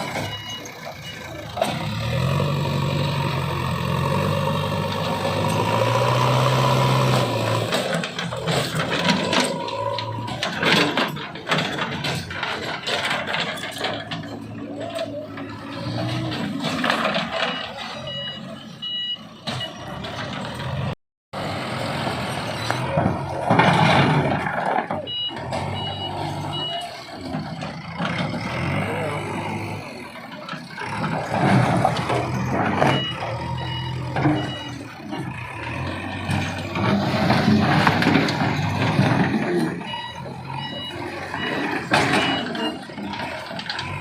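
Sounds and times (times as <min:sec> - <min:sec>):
reversing alarm beeping: 0:00.0 - 0:01.4, 0:17.4 - 0:20.0, 0:25.0 - 0:27.7, 0:32.3 - 0:34.9, 0:39.6 - 0:44.0
diesel bulldozer engine running: 0:00.0 - 0:44.0.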